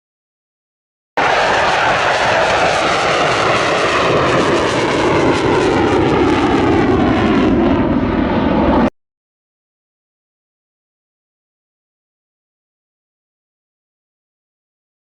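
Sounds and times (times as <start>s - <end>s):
jet aircraft flying past: 1.2s - 8.9s.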